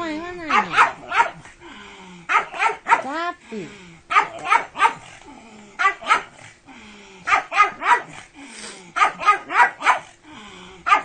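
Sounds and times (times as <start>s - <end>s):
dog barking: 0.4s - 1.5s, 2.3s - 3.2s, 4.1s - 5.1s, 5.8s - 6.4s, 7.3s - 8.2s, 9.0s - 10.1s.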